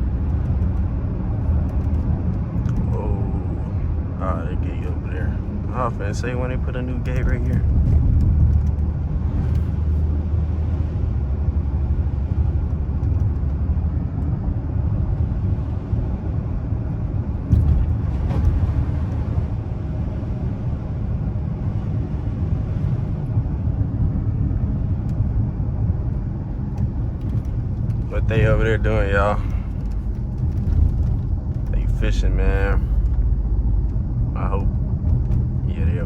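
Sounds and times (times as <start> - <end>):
car engine and road rumble: 0.0 - 36.0
car bump: 17.4 - 19.5.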